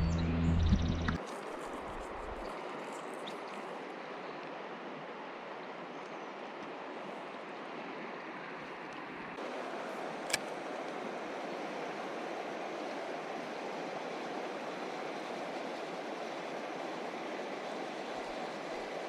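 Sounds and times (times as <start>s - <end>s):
river water rushing: 4.8s - 19.0s.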